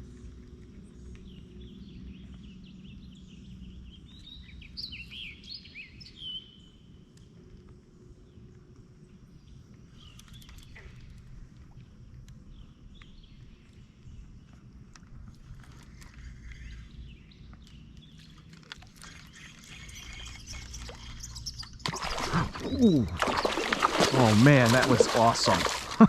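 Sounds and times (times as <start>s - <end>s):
birds chirping: 15.8s - 26.0s.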